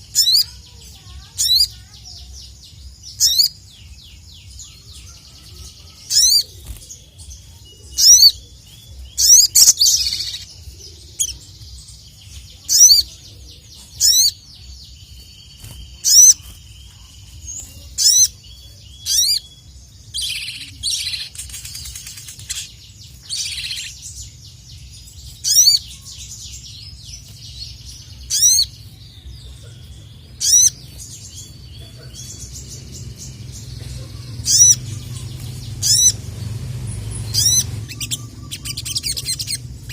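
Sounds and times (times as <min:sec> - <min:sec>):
bird calling sharp chirps: 0:00.0 - 0:11.5, 0:12.6 - 0:13.2, 0:14.0 - 0:24.4, 0:25.0 - 0:29.0, 0:30.2 - 0:39.9
hissy rustling bursts: 0:21.2 - 0:22.7.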